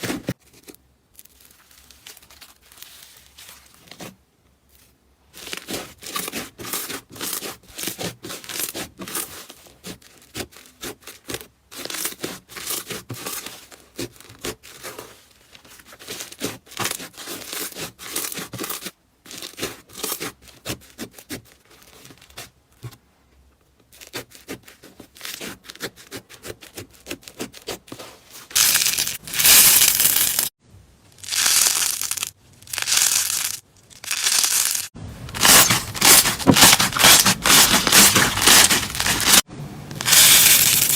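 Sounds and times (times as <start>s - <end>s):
slime crackling when squeezed: 31.2s - 39.4s.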